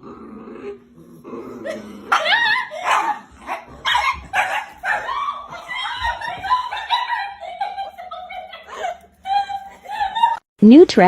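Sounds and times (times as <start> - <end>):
dog yelping and barking: 1.6 - 10.4.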